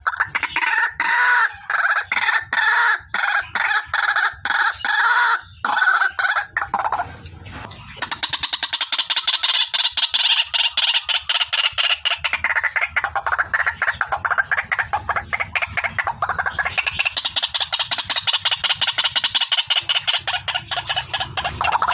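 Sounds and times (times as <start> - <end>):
bird harsh loud calls: 0.0 - 7.2, 7.9 - 21.9.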